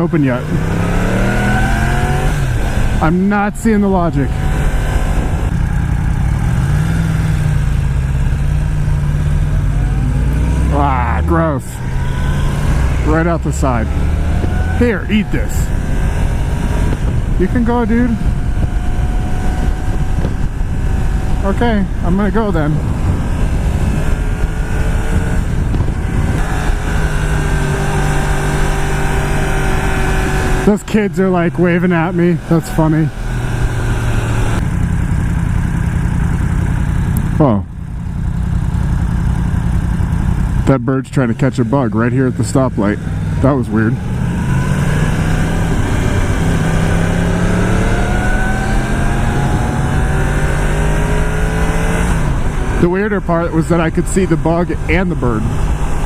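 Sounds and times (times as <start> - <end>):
motorcycle engine running: 0.0 - 56.0
road and wind noise: 0.0 - 56.0.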